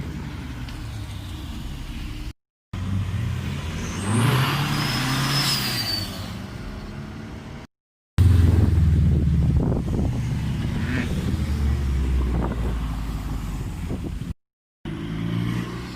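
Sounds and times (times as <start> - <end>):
car revving and accelerating: 2.8 - 5.5, 14.9 - 15.9
car engines running: 8.2 - 15.9.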